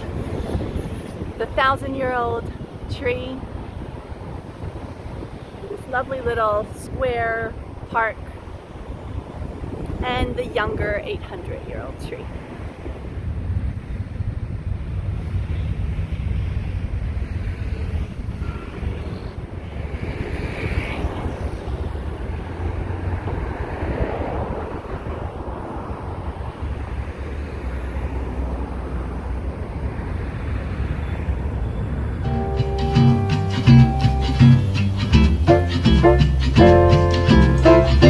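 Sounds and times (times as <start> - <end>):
wind on microphone: 0.0 - 28.0
traffic rumble: 0.0 - 38.0.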